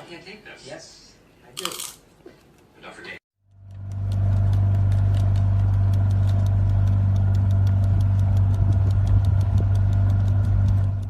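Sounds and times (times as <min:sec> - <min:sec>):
low motor hum: 0:03.4 - 0:11.0
quick even ticking: 0:03.5 - 0:11.0.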